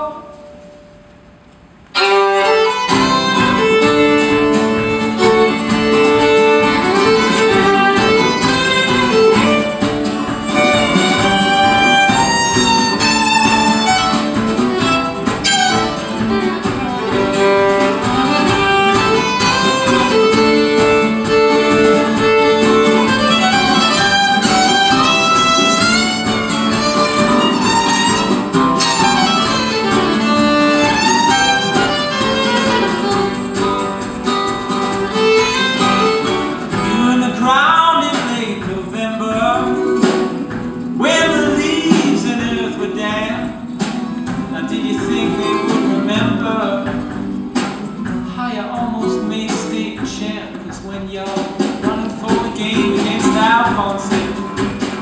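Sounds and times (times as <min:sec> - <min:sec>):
plucked and strummed guitar: 0:00.0 - 0:55.0
violin melody: 0:01.9 - 0:37.3.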